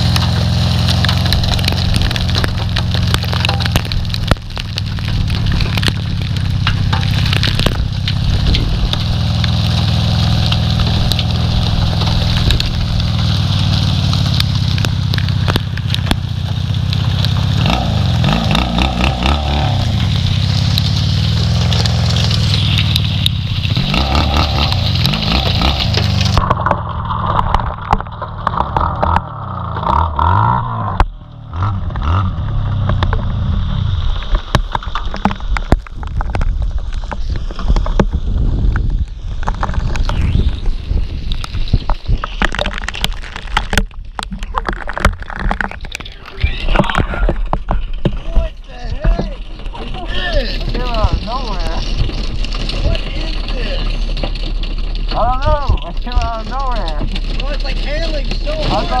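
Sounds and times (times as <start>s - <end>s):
motorcycle engine rumble: 0.0s - 59.0s
wind rushing over microphone: 4.0s - 15.8s, 31.7s - 53.8s.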